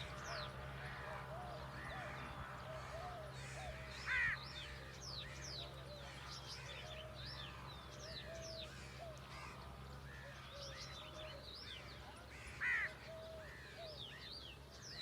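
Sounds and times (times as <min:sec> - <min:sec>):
loud harsh bird call: 0:00.0 - 0:05.5
birds chirping and twittering: 0:00.0 - 0:15.0.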